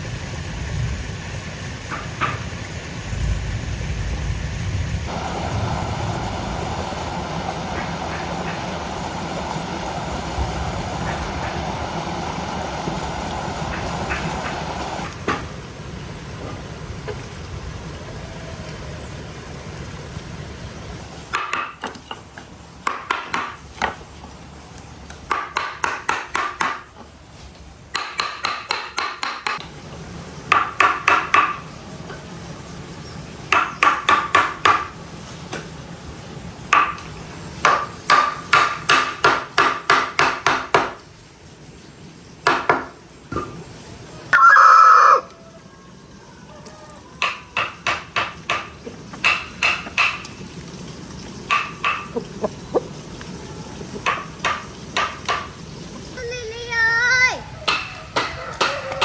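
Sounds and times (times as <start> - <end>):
low rushing noise: 0.0 - 21.2
hammer driving nails into wood: 27.9 - 29.6.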